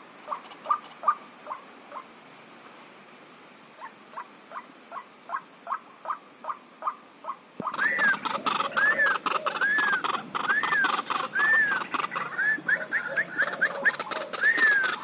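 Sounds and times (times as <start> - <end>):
animal chirps: 6.8 - 15.0
rising-and-falling animal calls: 7.6 - 15.0.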